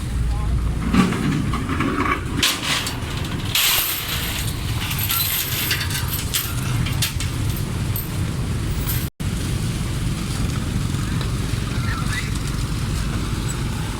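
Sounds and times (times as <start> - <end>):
ferry engines rumbling: 0.0 - 13.9
clinks and clatter: 0.7 - 9.1.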